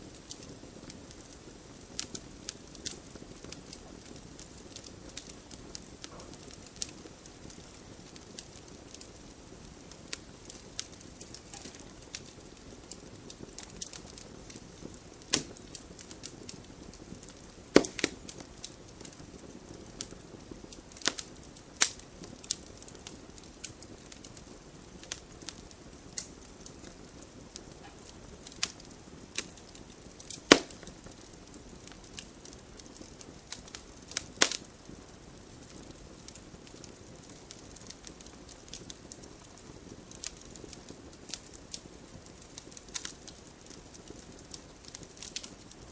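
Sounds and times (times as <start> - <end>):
fire crackling and popping: 0.0 - 45.9
fire hissing: 0.0 - 45.9
sharp loud snaps: 30.5 - 30.9.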